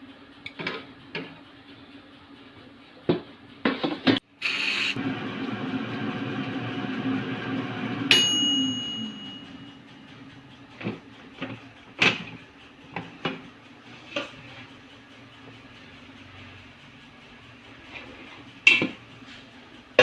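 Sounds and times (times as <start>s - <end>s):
air fryer fan hum: 0.0s - 20.0s.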